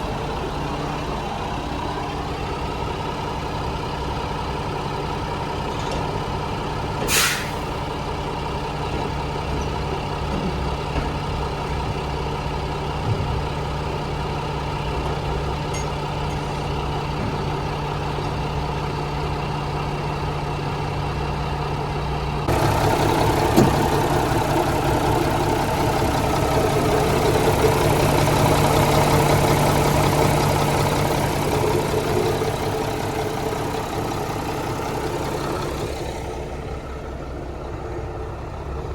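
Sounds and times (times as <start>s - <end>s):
truck diesel engine running: 0.0s - 38.9s
air brake hiss: 7.0s - 7.8s.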